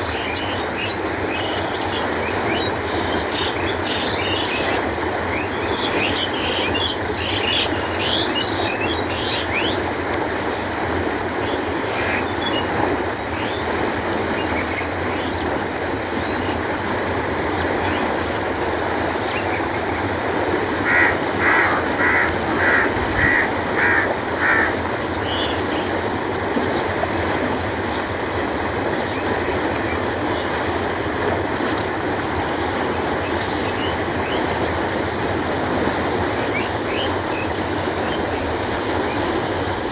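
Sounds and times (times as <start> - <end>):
water flowing: 0.0 - 39.9
bird calling: 20.7 - 26.0.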